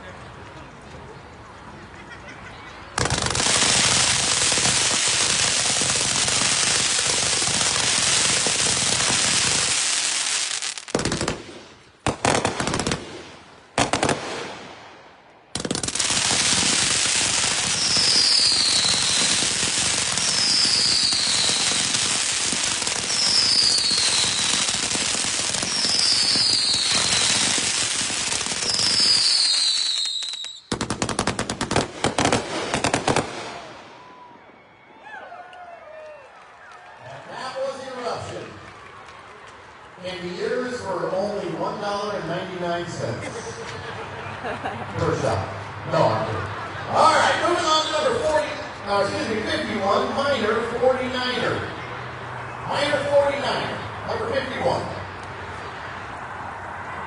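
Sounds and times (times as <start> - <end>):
fireworks barrage: 3.0 - 34.6
falling firework whistles: 16.0 - 30.9.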